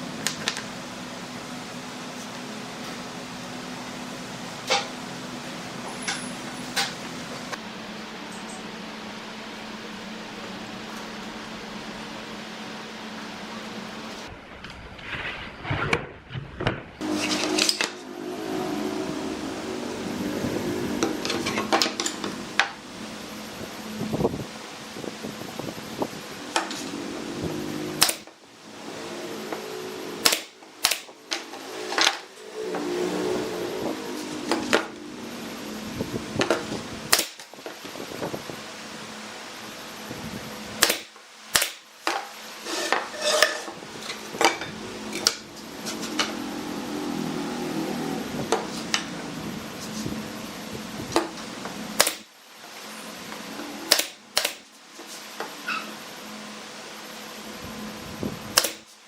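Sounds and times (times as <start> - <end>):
steady low hum: 0.0 - 41.6, 42.4 - 58.6.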